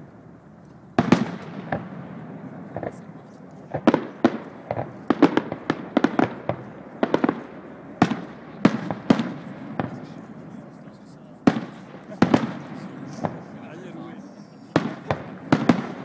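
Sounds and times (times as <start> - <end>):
firework shells bursting: 1.0 - 10.2, 11.4 - 13.6, 14.7 - 16.0.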